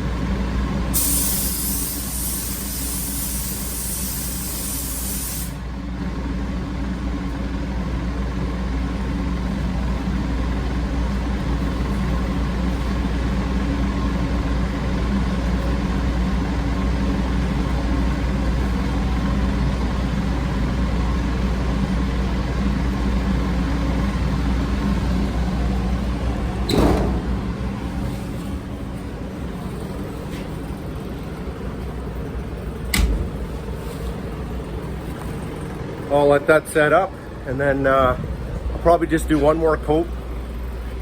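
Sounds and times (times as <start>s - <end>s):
low machine hum: 0.0s - 1.0s, 5.5s - 41.0s
paint spray gun hissing: 1.0s - 5.6s.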